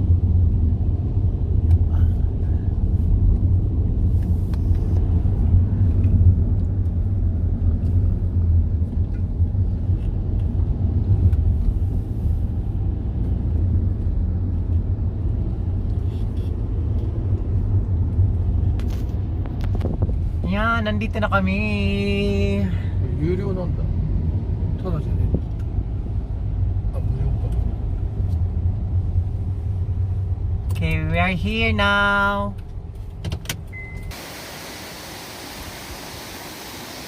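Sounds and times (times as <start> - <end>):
car engine and road noise: 0.0 - 37.0.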